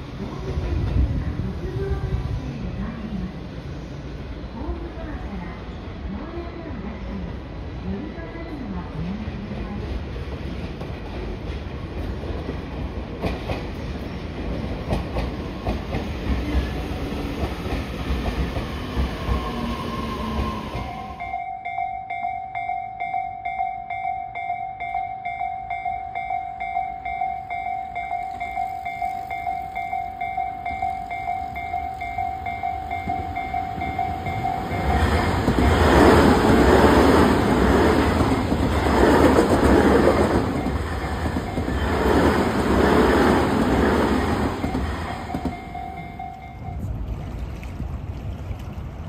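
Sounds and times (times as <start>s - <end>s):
level crossing warning bell: 20.8s - 39.0s, 40.0s - 46.9s
train clattering over rail joints: 30.1s - 46.8s.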